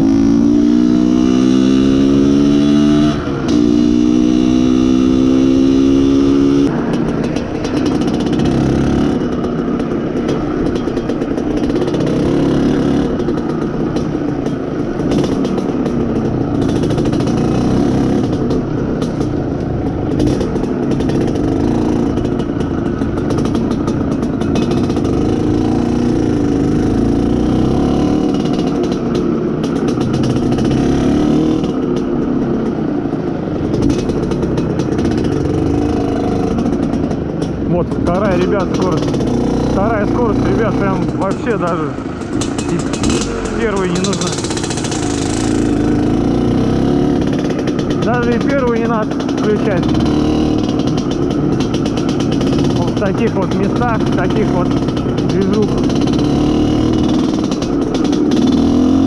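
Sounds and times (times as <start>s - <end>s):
two-stroke motorcycle engine revving: 0.0s - 59.0s.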